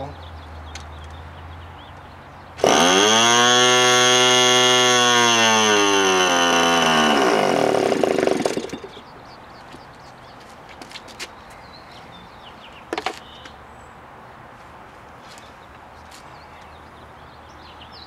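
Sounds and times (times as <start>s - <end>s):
electric starter whine: 2.6s - 9.0s
uneven rattling: 2.6s - 9.0s.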